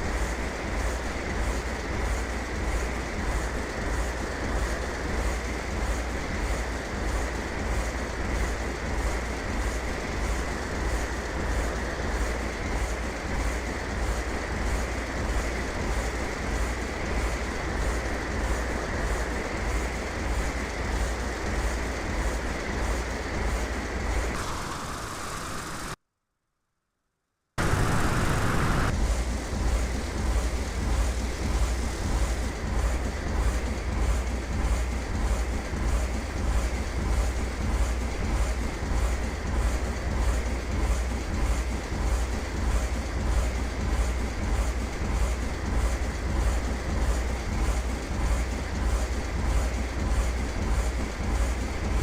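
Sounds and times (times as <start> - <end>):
propeller and engine rumble: 0.0 - 26.0, 27.6 - 52.0
airplane cabin roar: 16.6 - 26.0, 27.6 - 35.7
rushing airflow: 27.6 - 29.0.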